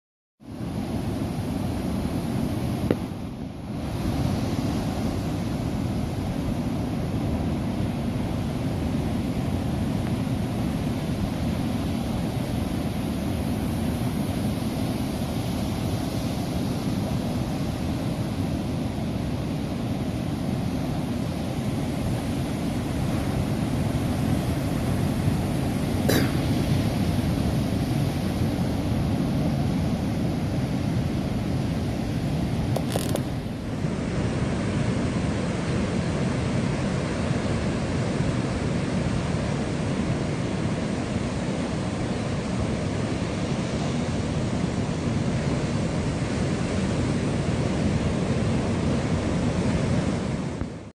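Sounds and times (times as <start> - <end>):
strong wind roaring: 0.4 - 50.9
heavy surf: 0.5 - 50.9.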